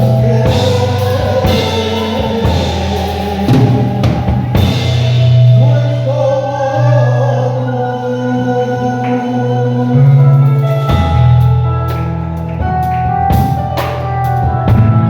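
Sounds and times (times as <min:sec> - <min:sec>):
person singing: 0:00.0 - 0:11.2
worship band playing: 0:00.0 - 0:15.0.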